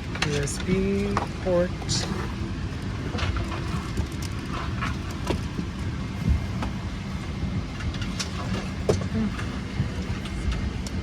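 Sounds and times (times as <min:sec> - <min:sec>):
air-conditioning hum: 0:00.0 - 0:11.0
low cabin rumble: 0:00.0 - 0:11.0.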